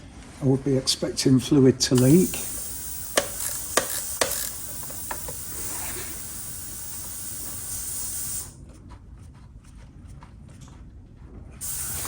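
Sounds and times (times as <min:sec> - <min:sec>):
steady hiss: 0:02.0 - 0:08.6, 0:11.6 - 0:12.0.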